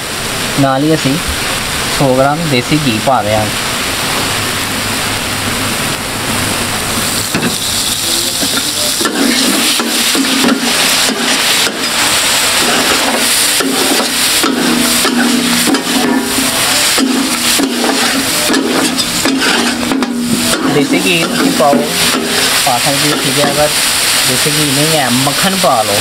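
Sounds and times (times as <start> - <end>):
chicken sizzling in ghee: 0.0 - 26.0
metal spatulas scraping griddle: 8.4 - 22.6.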